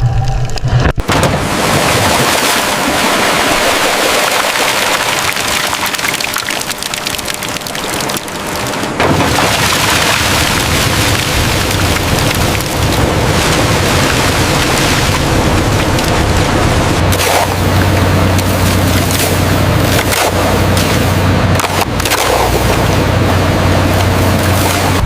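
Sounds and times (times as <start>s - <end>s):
deep rumble: 0.0s - 25.0s.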